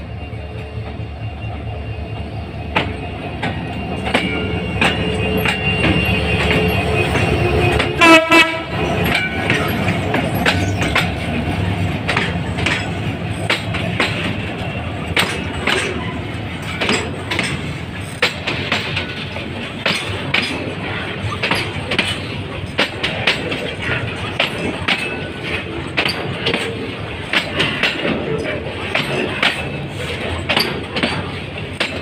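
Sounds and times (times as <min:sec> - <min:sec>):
locomotive engine drone: 0:00.0 - 0:32.0
train horn blast: 0:05.2 - 0:08.9
wheels clattering over rail joints: 0:08.7 - 0:32.0.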